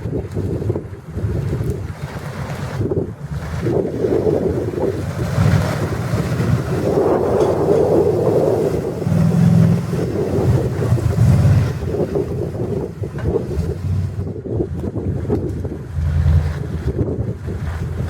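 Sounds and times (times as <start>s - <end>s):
wind and rain on microphone: 0.0s - 18.0s
truck engine revving: 3.4s - 14.3s, 15.8s - 16.9s.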